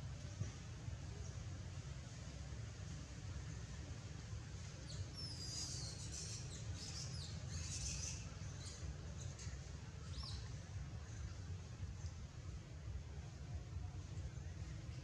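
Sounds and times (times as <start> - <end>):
steady low hum: 0.0 - 15.0
small birds chirping: 4.8 - 11.4.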